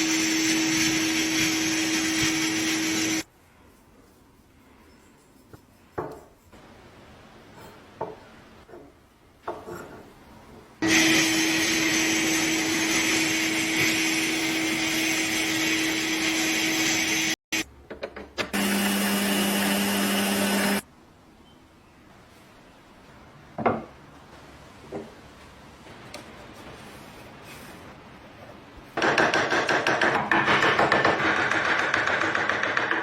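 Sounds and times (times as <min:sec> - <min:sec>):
small electric power tool running: 0:10.8 - 0:17.4, 0:18.6 - 0:20.8.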